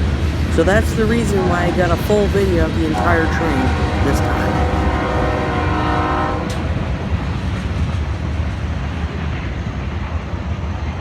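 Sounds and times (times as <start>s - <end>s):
diesel locomotive horn chord: 0.0s - 7.2s
freight train rumbling past: 0.0s - 11.0s.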